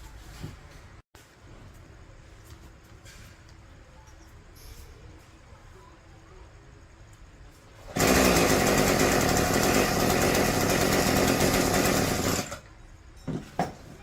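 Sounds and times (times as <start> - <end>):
power tool rattling: 7.9 - 12.7.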